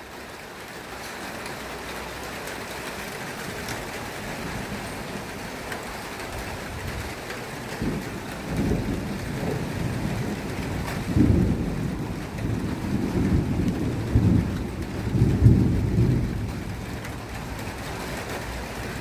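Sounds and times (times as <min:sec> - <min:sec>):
rain pattering: 0:00.0 - 0:19.0
rolling thunder rumbling: 0:03.0 - 0:19.0.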